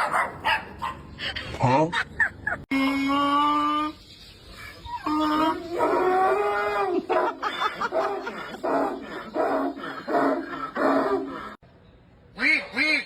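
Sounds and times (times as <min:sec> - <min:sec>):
man howling like a dog: 0:05.0 - 0:11.6.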